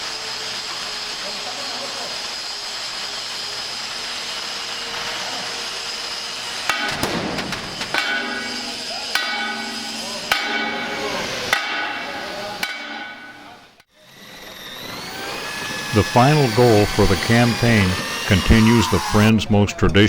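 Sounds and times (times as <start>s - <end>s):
hammer blows on steel: 6.5s - 13.8s, 15.2s - 19.4s
steady rushing hiss: 15.1s - 19.4s.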